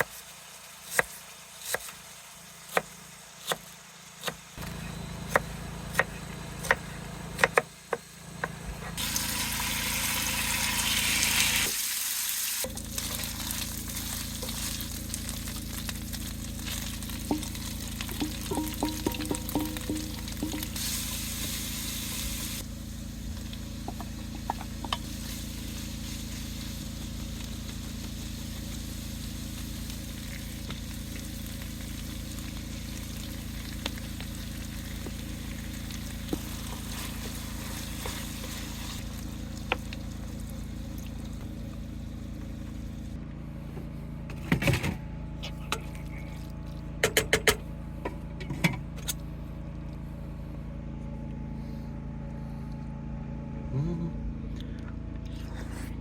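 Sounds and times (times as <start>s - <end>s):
food sizzling in a pan: 9.0s - 40.9s
steady low hum: 12.7s - 56.0s.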